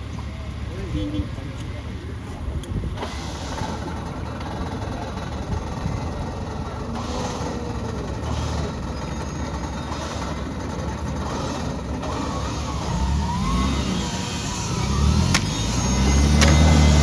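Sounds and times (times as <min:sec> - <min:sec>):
off-road engine revving under load: 0:00.0 - 0:17.0
sharp click: 0:16.4 - 0:17.0.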